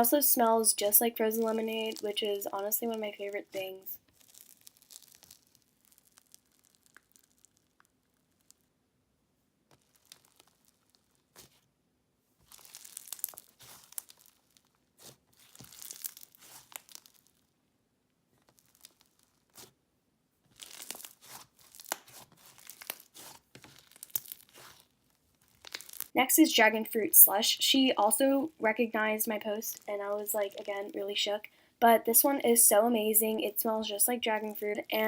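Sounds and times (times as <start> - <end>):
slime crackling and popping: 3.6 - 8.8, 9.7 - 11.6, 12.4 - 17.6, 18.4 - 19.8, 20.5 - 26.2.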